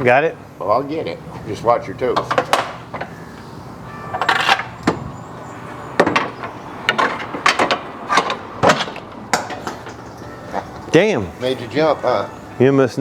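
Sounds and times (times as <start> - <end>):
heavy metal clunks and knocks: 2.2 - 3.1, 4.1 - 10.2.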